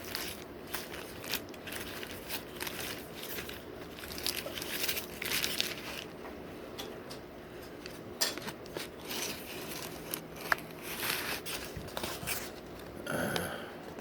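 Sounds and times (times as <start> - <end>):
crinkly noises: 0.0 - 6.3, 7.5 - 13.0.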